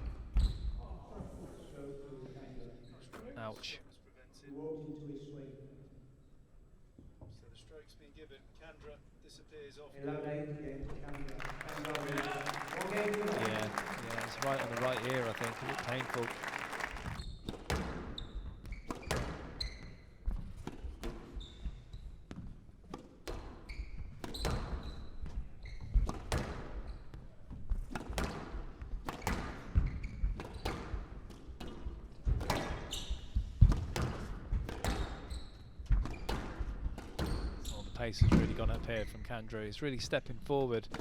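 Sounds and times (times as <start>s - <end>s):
shoes squeaking on court floor: 0.0s - 0.8s, 11.4s - 22.6s, 23.3s - 27.9s, 29.2s - 33.8s, 34.8s - 38.0s
squash ball hitting rackets and walls: 17.4s - 37.7s.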